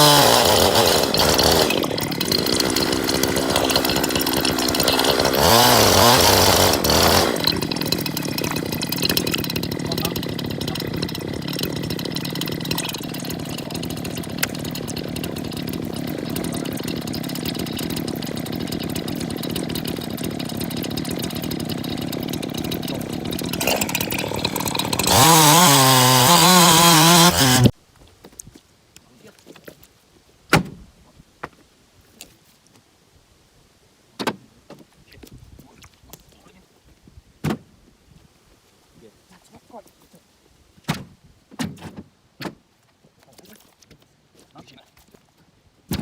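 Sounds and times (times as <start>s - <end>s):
chainsaw idling and revving: 0.0s - 27.7s.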